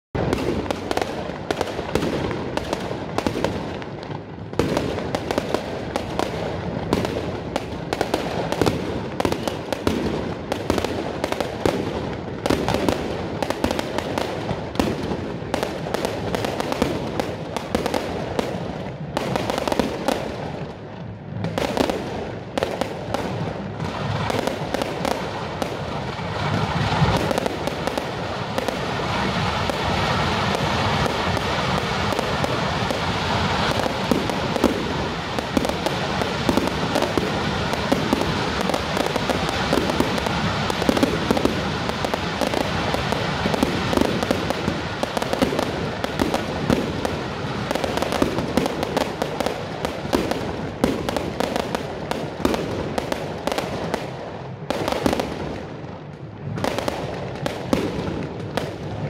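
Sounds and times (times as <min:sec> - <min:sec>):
fireworks cracking and banging: 0:00.1 - 0:59.0.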